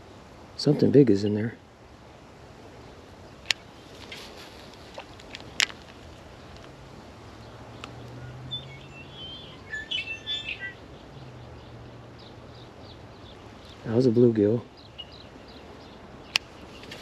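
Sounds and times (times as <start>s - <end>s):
small bird chirping: 7.4s - 14.0s, 14.6s - 17.0s.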